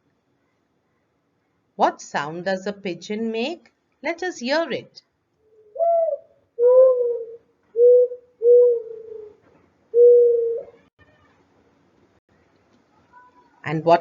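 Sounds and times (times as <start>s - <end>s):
pigeon cooing: 5.6s - 10.8s.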